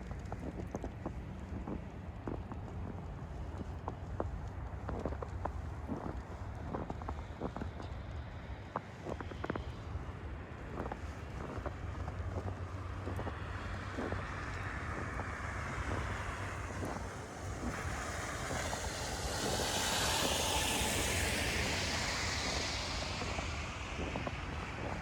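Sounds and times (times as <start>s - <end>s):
wind rumble on microphone: 0.0s - 25.0s
tyre hiss on wet road: 15.5s - 25.0s.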